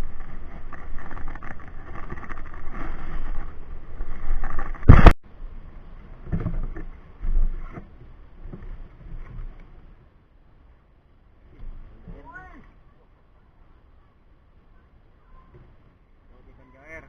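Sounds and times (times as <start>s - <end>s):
rustling handling noise: 0.0s - 5.2s.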